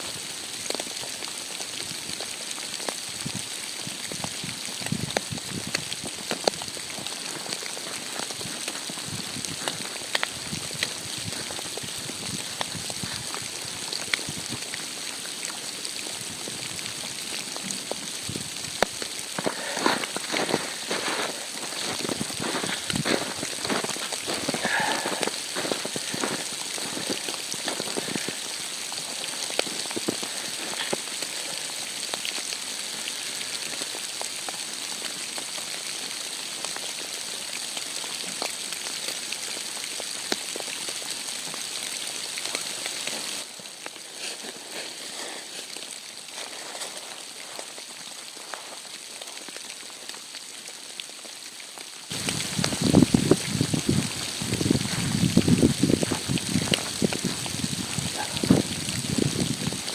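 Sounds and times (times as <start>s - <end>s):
rain patter on a surface: 0.0s - 59.9s.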